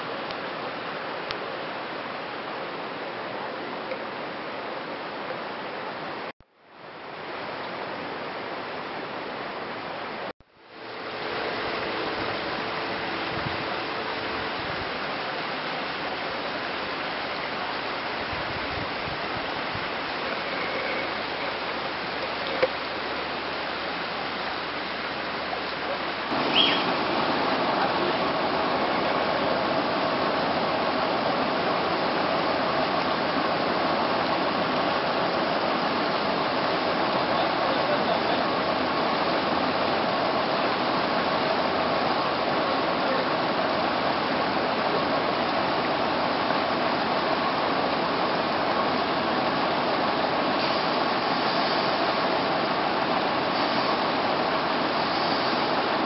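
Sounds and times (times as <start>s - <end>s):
floodwater rushing: 0.0s - 56.0s.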